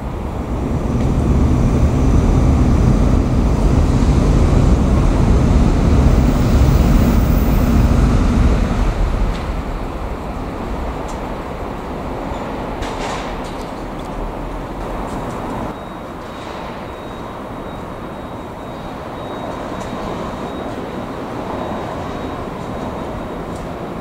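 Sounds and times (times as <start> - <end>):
electric train rumbling past: 0.0 - 24.0.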